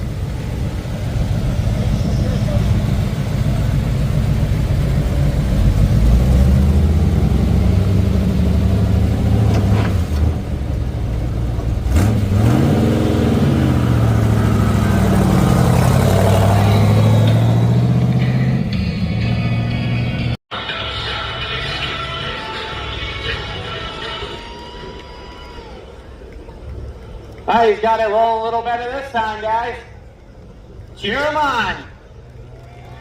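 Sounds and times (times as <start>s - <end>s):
truck engine running loudly: 0.0s - 24.3s.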